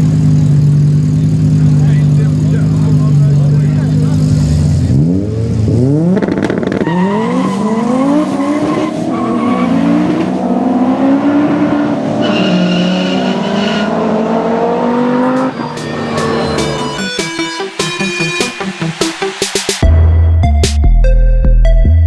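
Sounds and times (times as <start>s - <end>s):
car engine revving hard: 0.0s - 17.3s.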